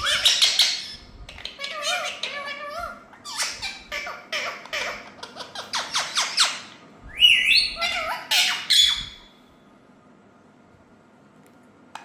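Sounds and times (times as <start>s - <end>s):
parrots chirping: 0.0s - 9.3s.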